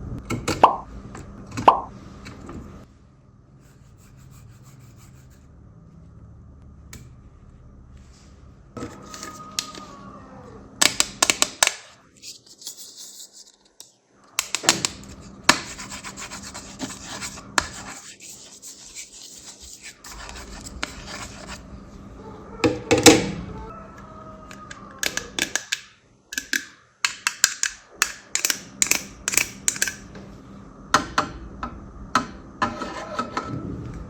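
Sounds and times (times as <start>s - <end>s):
hands rubbing fidget toy: 3.6s - 5.5s, 12.1s - 21.6s.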